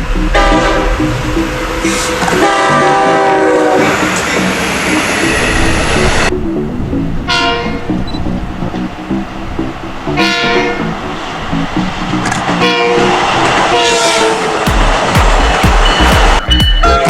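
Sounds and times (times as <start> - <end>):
locomotive horn blasts: 0.0 - 5.6, 7.2 - 8.1, 10.1 - 11.0, 12.5 - 14.6, 16.4 - 17.0
train rumble: 0.0 - 17.0.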